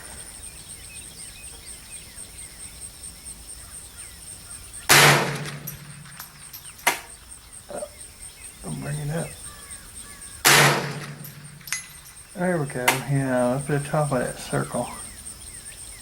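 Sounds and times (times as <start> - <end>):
insects chirping: 0.0 - 16.0
rifle shot: 4.9 - 7.1, 10.4 - 12.0.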